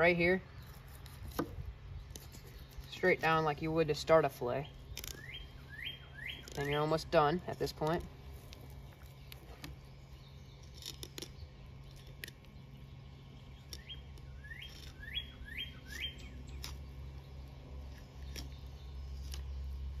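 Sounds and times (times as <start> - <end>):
low steady hum: 0.0 - 20.0
bird calling rising notes: 4.7 - 6.8, 12.7 - 17.1.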